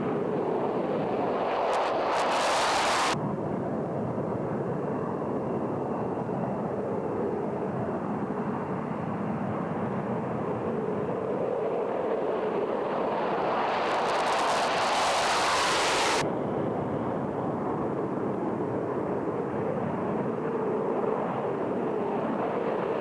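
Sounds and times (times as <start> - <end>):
jet engine running: 0.0 - 3.2, 9.6 - 16.3.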